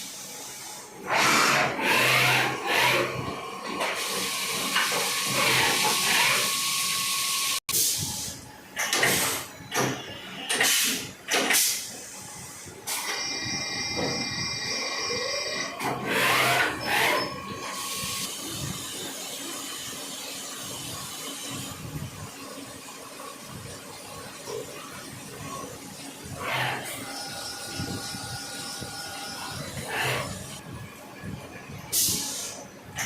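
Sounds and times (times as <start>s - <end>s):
thin machine whine: 12.0s - 21.9s, 24.2s - 32.7s.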